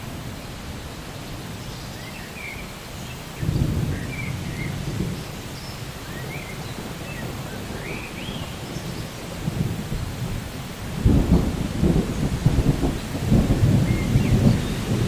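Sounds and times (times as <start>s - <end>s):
steady rain: 0.0s - 15.0s
low rumble of thunder: 3.4s - 15.0s.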